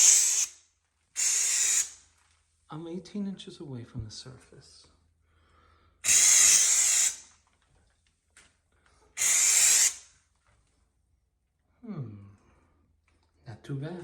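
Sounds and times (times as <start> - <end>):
texture spray hissing: 0.0 - 0.6, 1.2 - 2.0, 6.1 - 7.2, 9.2 - 10.0.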